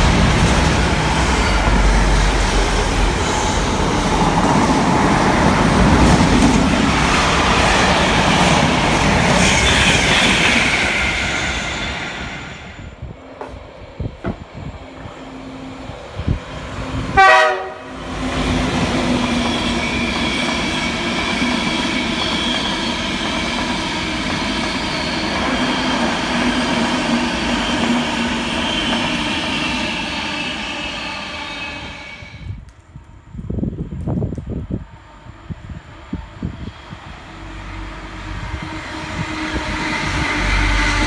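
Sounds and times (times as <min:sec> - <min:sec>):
train rushing past: 0:00.0 - 0:32.6, 0:33.5 - 0:41.0
train horn blast: 0:09.5 - 0:10.7, 0:17.1 - 0:18.0.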